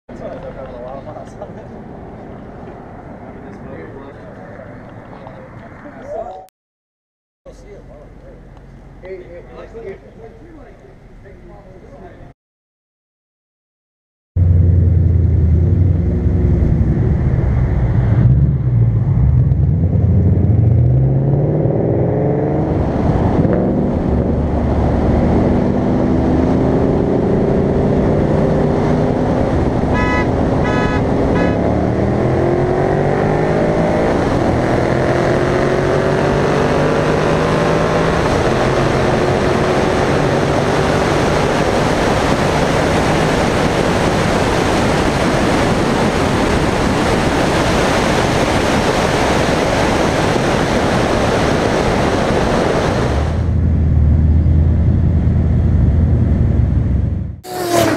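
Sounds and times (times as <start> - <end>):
road and wind noise: 0.1 - 6.5, 7.5 - 12.3, 14.4 - 57.9
car engines at full throttle: 14.4 - 57.9.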